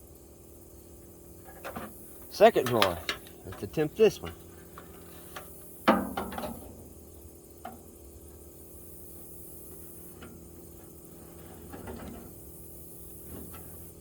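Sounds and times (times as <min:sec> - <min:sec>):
metal toolbox drawer clanking: 0:02.4 - 0:03.7.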